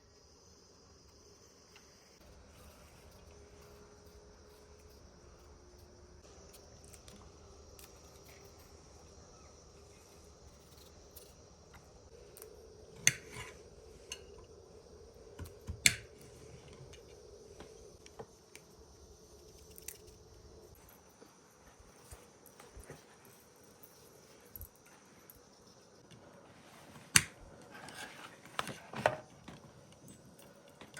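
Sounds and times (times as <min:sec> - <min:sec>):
crickets chirping: 0:00.0 - 0:30.9.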